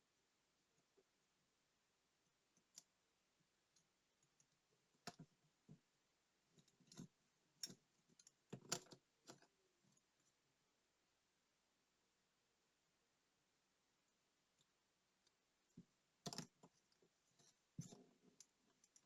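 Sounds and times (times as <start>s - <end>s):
small tools clicking and tapping: 16.3s - 19.0s.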